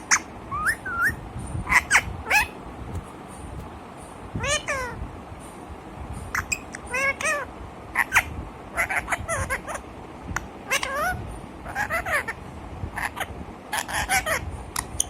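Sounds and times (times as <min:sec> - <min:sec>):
parrot meow-like calls: 0:04.4 - 0:05.0, 0:06.4 - 0:08.2, 0:08.8 - 0:09.8, 0:10.7 - 0:12.4.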